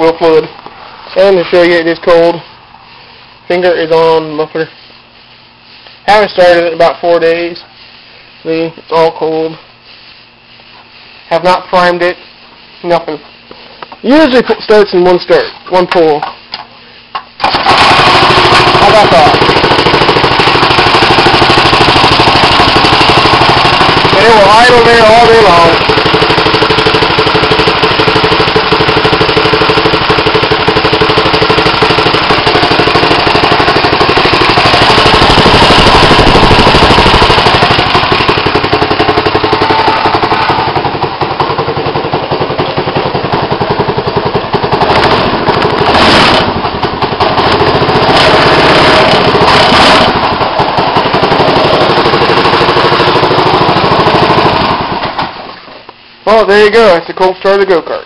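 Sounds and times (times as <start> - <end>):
go-kart engine idling: 17.4 - 55.4.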